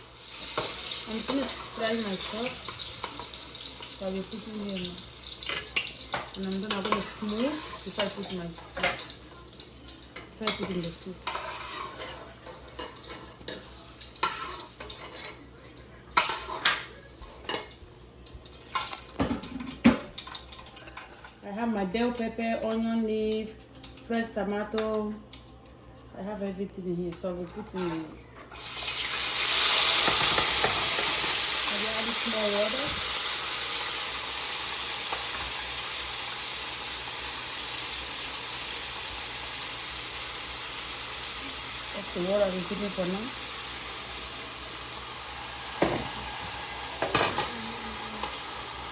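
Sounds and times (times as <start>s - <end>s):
vegetables sizzling in hot oil: 0.0s - 19.6s, 28.5s - 48.9s
utensil scraping a pot: 11.2s - 12.3s.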